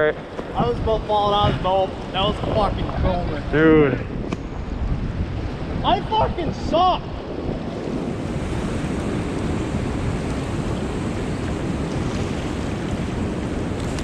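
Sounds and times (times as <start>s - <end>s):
gusty wind buffeting microphone: 0.0s - 14.0s.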